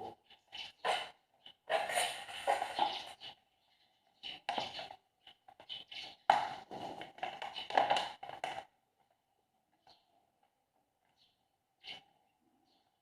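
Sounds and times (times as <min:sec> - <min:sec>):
objects tapping and knocking: 0:01.7 - 0:03.2, 0:04.3 - 0:09.2.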